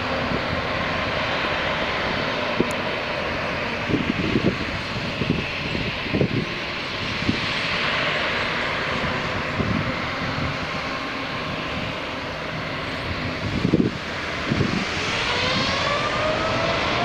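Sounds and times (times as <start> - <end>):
jet airliner engine roar: 0.0 - 17.0.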